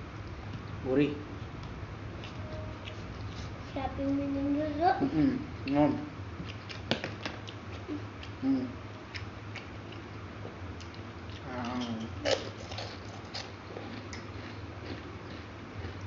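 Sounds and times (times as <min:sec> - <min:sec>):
steady low hum: 0:00.0 - 0:16.0
person murmuring: 0:05.0 - 0:06.0, 0:08.4 - 0:08.8
crackers crunching while chewed: 0:10.8 - 0:16.0.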